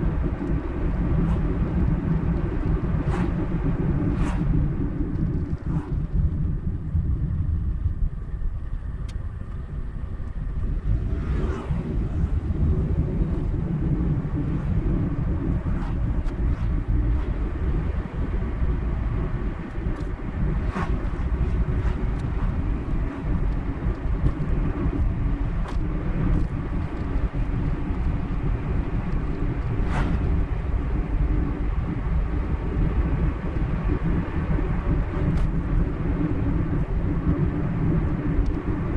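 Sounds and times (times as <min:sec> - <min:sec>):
car tyres and engine rumble: 0:00.0 - 0:38.9
faint swishes: 0:01.0 - 0:06.4, 0:10.8 - 0:28.1, 0:28.9 - 0:31.1.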